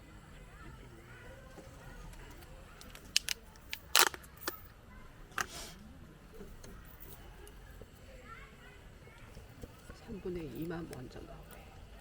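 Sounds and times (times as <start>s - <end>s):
small hard objects clicking: 2.8s - 4.6s.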